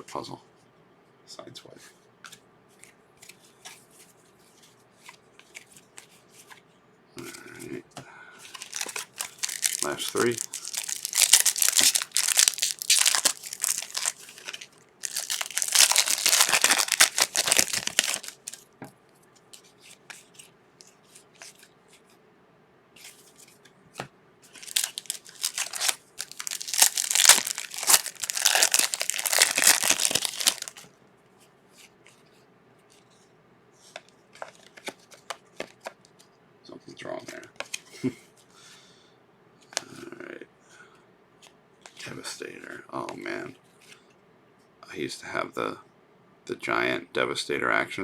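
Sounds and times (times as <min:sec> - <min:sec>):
card wrappers tearing and crinkling: 0:08.5 - 0:18.7, 0:24.5 - 0:30.9.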